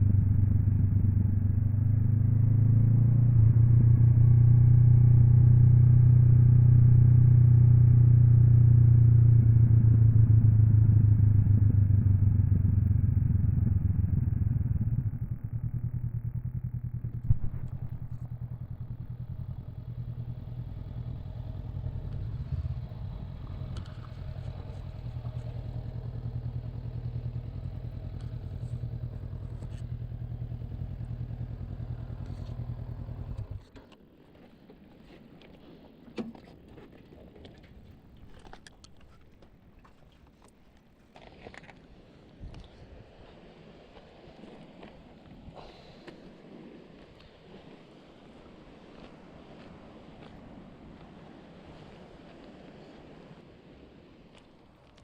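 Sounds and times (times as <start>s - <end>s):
motorcycle engine running and idling: 0.0s - 34.0s.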